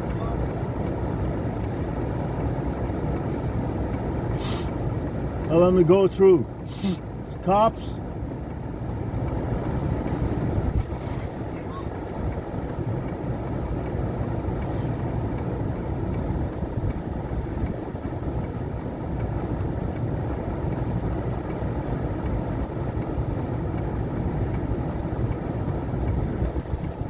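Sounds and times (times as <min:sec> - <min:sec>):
blizzard wind buffeting microphone: 0:06.4 - 0:27.0.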